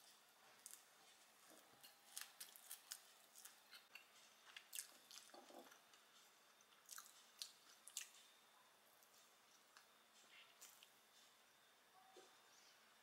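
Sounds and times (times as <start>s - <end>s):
chewing crusty bread: 0.6s - 8.3s.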